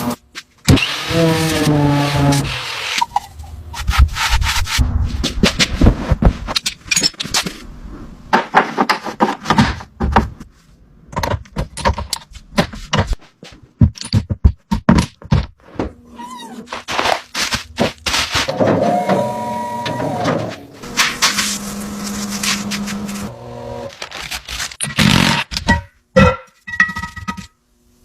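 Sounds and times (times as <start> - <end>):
scraping and rubbing: 1.1 - 9.5, 15.6 - 18.8, 20.5 - 25.3
knocks and thunks on hard surfaces: 8.3 - 10.4, 13.8 - 15.9.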